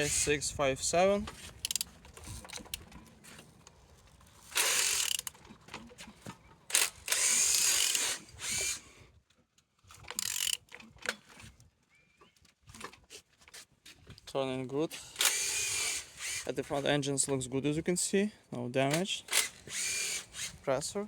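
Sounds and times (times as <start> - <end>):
wrench clicking on crankshaft: 1.6 - 2.8, 4.6 - 5.4, 10.1 - 10.7.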